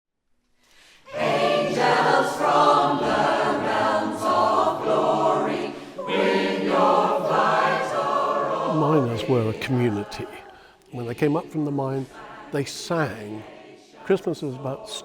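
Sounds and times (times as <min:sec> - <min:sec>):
breath: 0:00.6 - 0:01.1, 0:10.5 - 0:10.9
choir singing unaccompanied: 0:01.0 - 0:15.0.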